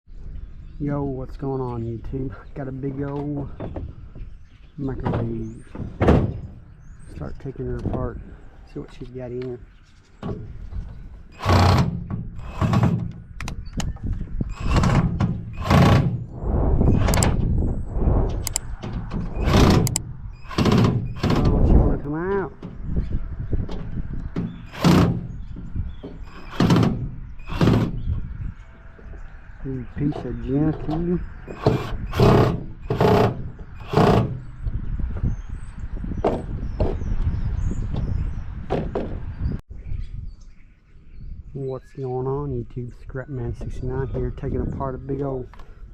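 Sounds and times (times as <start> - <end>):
harsh metal scrape: 14.5 - 22.0
sharp clicks: 18.3 - 21.6.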